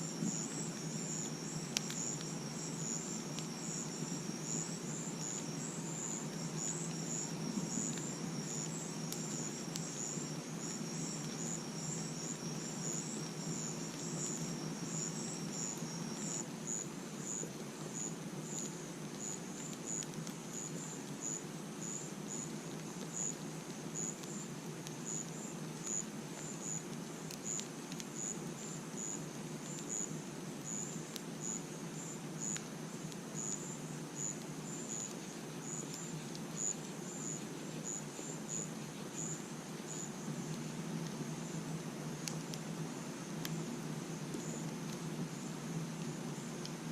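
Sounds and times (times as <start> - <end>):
insect high trill: 0.0 - 16.8
campfire crackles: 0.0 - 46.9
crickets chirping: 0.0 - 46.9
low background hiss: 0.0 - 46.9.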